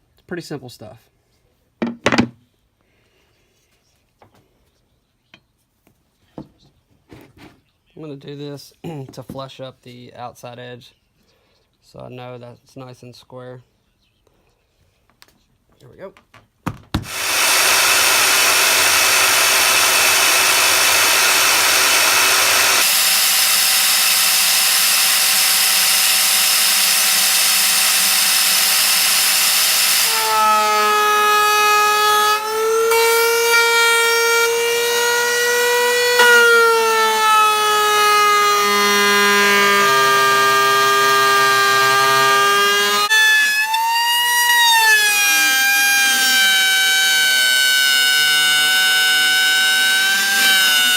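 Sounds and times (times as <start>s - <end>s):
router hissing: 17.0s - 50.9s
router whining while cutting: 17.0s - 50.9s.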